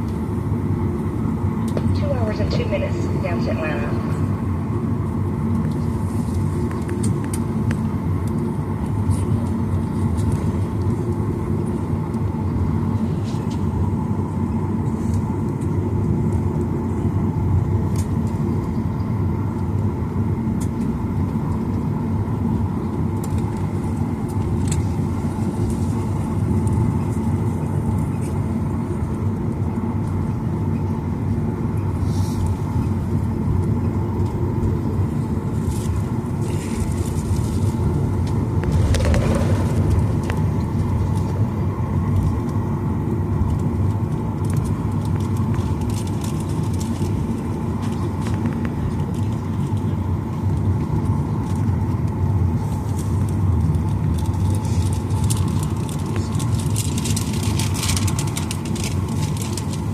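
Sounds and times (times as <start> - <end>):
steady hum: 0.0 - 18.7, 34.8 - 44.2
jet engine cabin rumble: 0.0 - 59.9.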